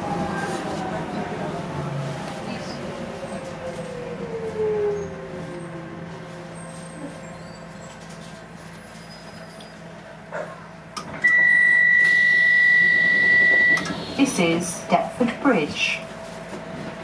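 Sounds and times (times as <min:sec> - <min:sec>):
train running rumble: 0:00.0 - 0:11.3, 0:12.1 - 0:17.0
train knocks stopping: 0:11.0 - 0:15.4
electric train drive whine: 0:11.0 - 0:16.9.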